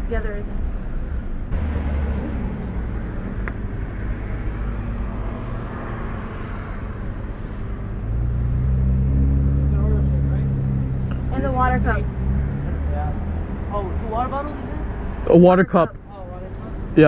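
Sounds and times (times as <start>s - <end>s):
loud steady engine hum: 0.0s - 17.0s
traffic noise: 0.0s - 17.0s
vehicle engine idling: 0.0s - 17.0s.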